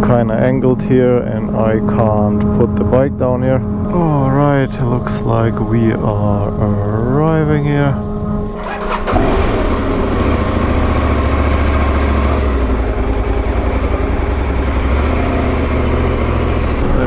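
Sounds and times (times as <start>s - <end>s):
motorcycle engine running: 3.6s - 17.0s.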